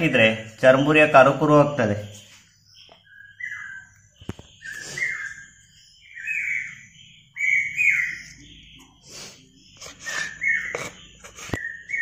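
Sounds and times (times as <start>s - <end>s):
bird singing whistled phrases: 2.8s - 12.0s.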